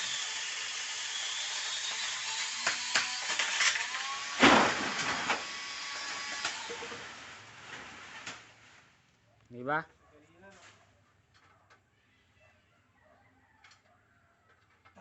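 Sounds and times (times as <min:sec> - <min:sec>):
electric chainsaw whining: 0:00.0 - 0:07.4
loud crash: 0:04.3 - 0:05.6.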